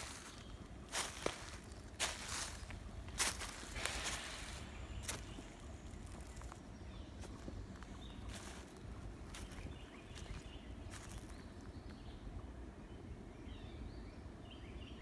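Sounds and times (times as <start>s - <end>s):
footsteps crunching through leaf litter: 0.0s - 11.5s.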